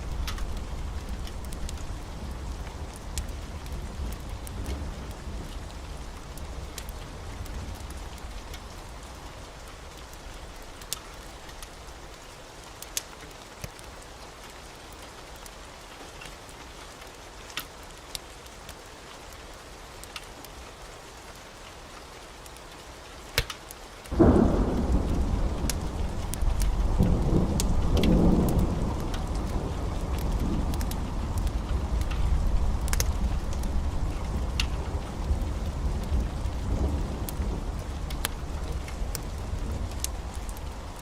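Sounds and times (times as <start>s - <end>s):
thunder rumbling: 0.0s - 8.8s, 24.1s - 41.0s
heavy rain: 0.0s - 41.0s
loud thunderclap: 24.2s - 40.6s.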